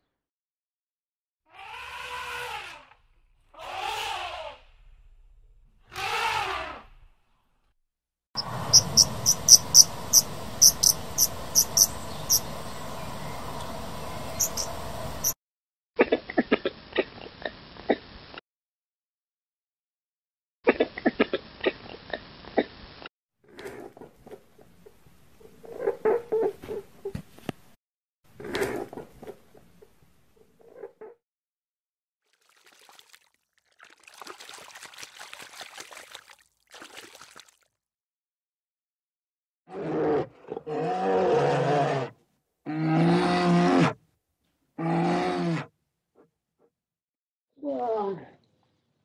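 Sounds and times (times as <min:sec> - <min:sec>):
lemur clicking calls: 0:08.4 - 0:12.5, 0:13.6 - 0:15.4.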